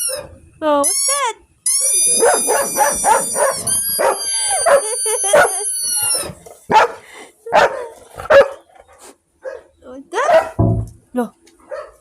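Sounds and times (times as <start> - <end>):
dog barking: 2.2 - 5.6, 6.7 - 8.6, 9.4 - 10.6, 11.6 - 12.0.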